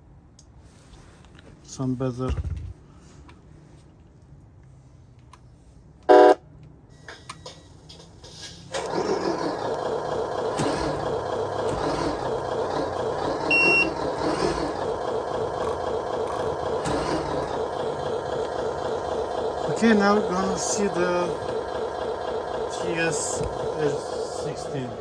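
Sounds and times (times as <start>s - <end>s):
electronic beeps: 6.1s - 6.4s, 13.5s - 14.0s
simulated truck engine running: 6.1s - 6.4s, 7.0s - 25.0s.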